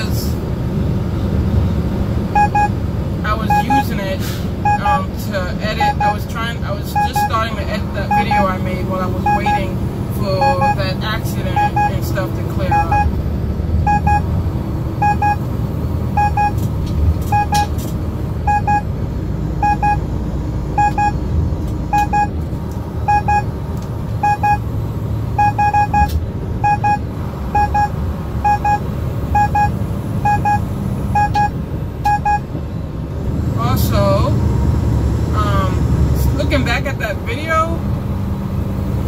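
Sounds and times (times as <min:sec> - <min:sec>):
truck engine and road drone: 0:00.0 - 0:39.0
electronic double beep: 0:02.4 - 0:02.8, 0:03.4 - 0:03.9, 0:04.6 - 0:05.0, 0:05.8 - 0:06.2, 0:06.9 - 0:09.7, 0:10.3 - 0:13.1, 0:13.9 - 0:14.2, 0:15.0 - 0:15.4, 0:16.2 - 0:16.6, 0:17.3 - 0:17.7, 0:18.5 - 0:18.8, 0:19.6 - 0:20.0, 0:20.8 - 0:21.2, 0:24.2 - 0:24.6, 0:25.4 - 0:27.0, 0:27.6 - 0:28.8, 0:29.4 - 0:30.6, 0:31.2 - 0:31.5, 0:32.1 - 0:32.4.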